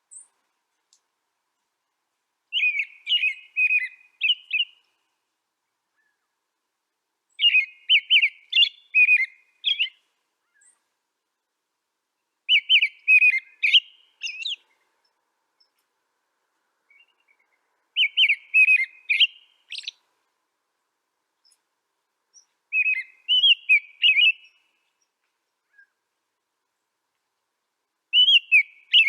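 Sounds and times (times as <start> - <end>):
songbird warbling: 2.5 - 5.0, 7.3 - 10.8, 12.5 - 14.8, 16.9 - 20.0, 22.3 - 26.0, 28.1 - 29.0.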